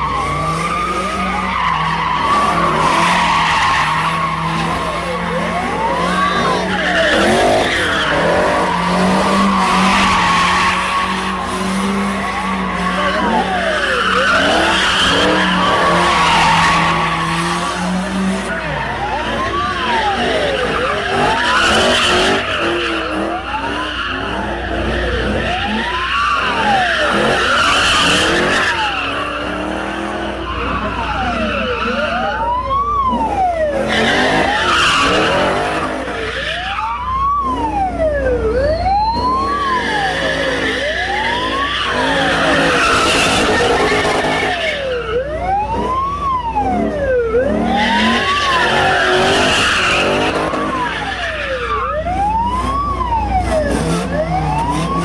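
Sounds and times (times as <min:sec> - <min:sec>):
tyres squealing: 0:00.0 - 0:29.6, 0:39.2 - 0:44.9
police siren sweeping: 0:00.0 - 0:55.0.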